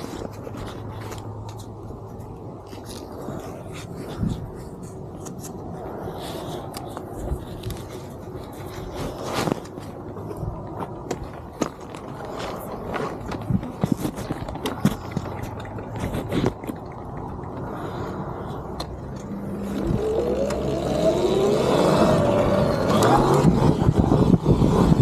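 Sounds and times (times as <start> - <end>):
tyres clicking over rough ground: 0.0 - 25.0
electric motor whine rising: 19.3 - 23.9.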